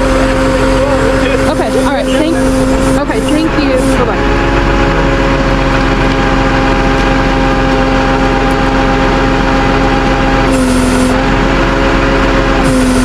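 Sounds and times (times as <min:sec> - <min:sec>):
truck engine humming: 0:00.0 - 0:13.0.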